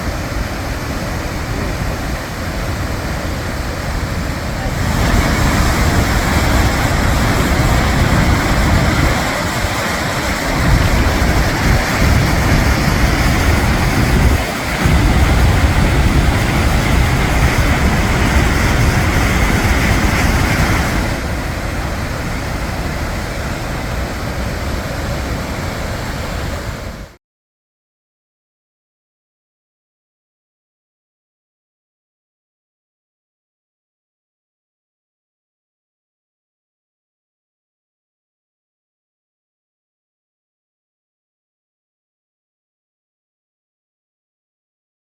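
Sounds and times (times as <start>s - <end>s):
wind buffeting microphone: 0.0s - 27.1s
waterfall roaring: 0.0s - 27.2s.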